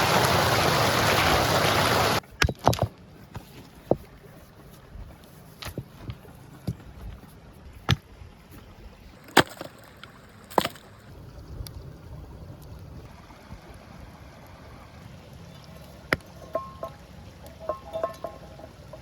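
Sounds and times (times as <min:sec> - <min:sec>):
low rumbling background: 0:11.1 - 0:19.0.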